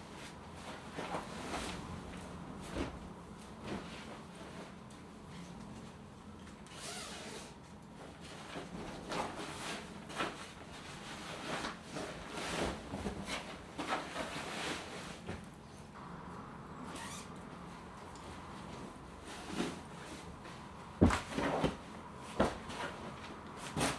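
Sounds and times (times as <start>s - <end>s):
short rustles and scrapes: 0.1s - 23.9s.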